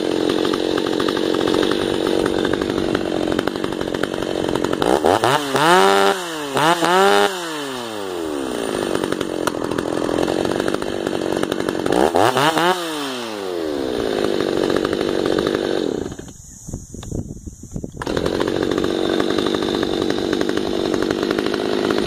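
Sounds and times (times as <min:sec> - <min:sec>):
chainsaw idling and revving: 0:00.0 - 0:16.4, 0:18.0 - 0:22.0.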